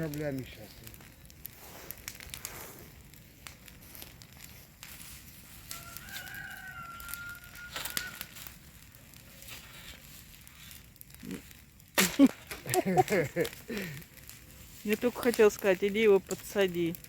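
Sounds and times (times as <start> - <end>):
rustling and crackling: 0.0 - 17.0
rooster crowing: 5.6 - 8.4.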